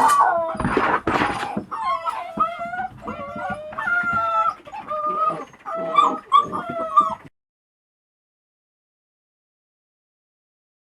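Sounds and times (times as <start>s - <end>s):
puppy whining and yelping: 0.0s - 7.3s.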